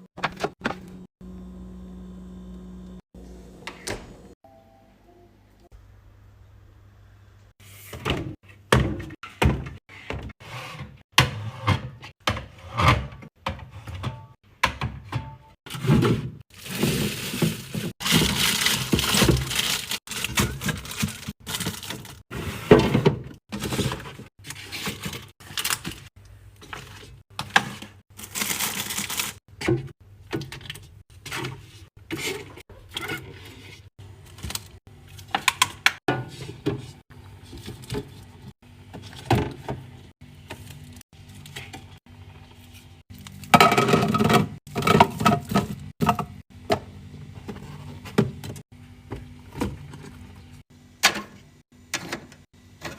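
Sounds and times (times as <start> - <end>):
packaging crinkling: 16.6 - 22.2, 28.2 - 29.4
hard containers clacking: 43.4 - 48.6.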